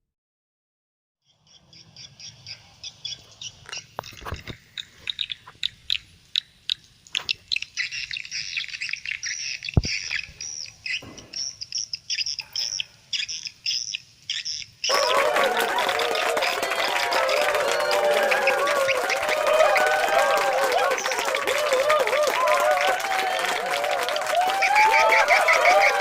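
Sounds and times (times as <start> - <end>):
bird chirps through phone speaker: 7.2 - 14.9.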